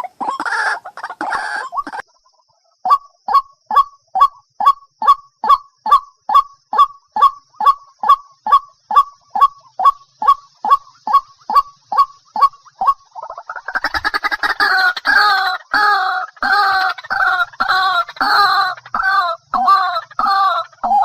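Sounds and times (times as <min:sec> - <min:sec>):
waterhen repeated call: 0:00.0 - 0:02.0, 0:02.9 - 0:21.0.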